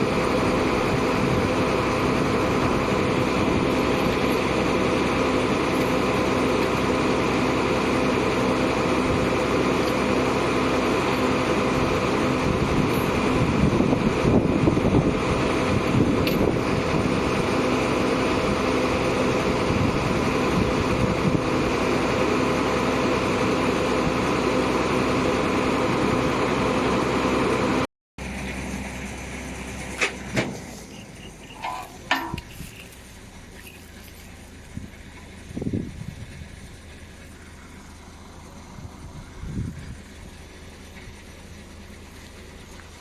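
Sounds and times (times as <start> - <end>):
heavy diesel engine running: 0.0 - 43.0
sharp knocks and clanks: 31.6 - 33.0.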